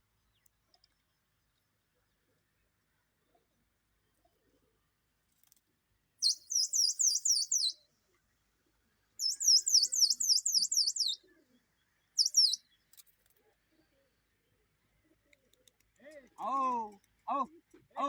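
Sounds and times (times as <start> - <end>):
small songbird chirping: 6.2 - 7.8, 9.2 - 11.2, 12.0 - 12.8.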